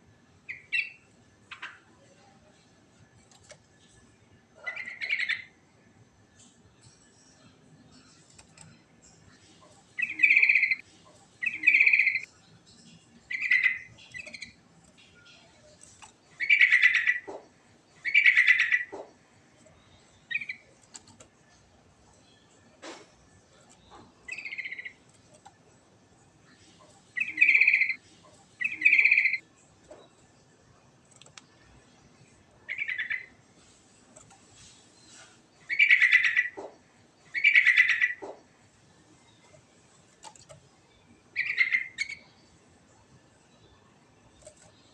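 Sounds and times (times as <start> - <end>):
bird singing bubbling rattly phrases: 0.4 - 2.0, 4.6 - 5.8, 6.8 - 20.8, 23.4 - 30.1, 31.5 - 33.4, 35.6 - 39.7, 40.4 - 44.9.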